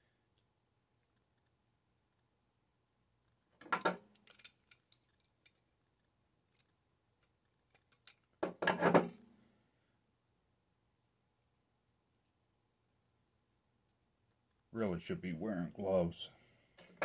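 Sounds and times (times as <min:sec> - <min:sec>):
tools clicking and scraping metal: 0:03.6 - 0:05.7, 0:06.5 - 0:09.2
metal parts clattering: 0:03.7 - 0:05.6.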